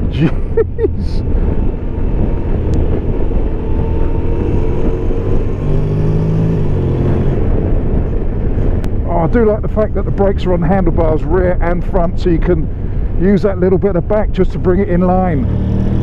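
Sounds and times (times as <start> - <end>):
wind and road noise: 0.0 - 16.0
scooter engine accelerating: 1.0 - 7.6, 15.4 - 16.0.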